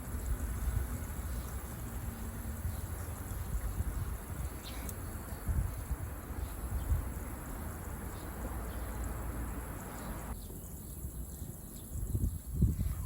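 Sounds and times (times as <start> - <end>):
campfire hissing: 0.0 - 10.4.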